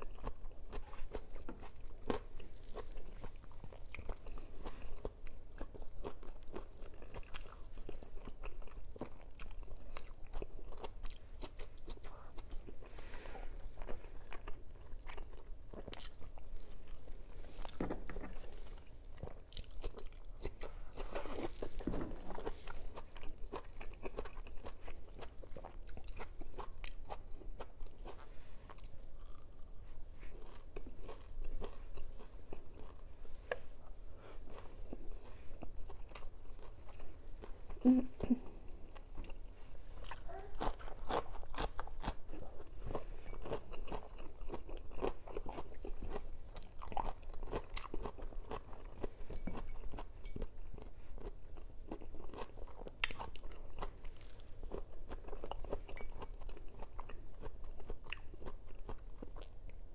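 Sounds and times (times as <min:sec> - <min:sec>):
chewing and crunching: 0:00.0 - 0:59.9.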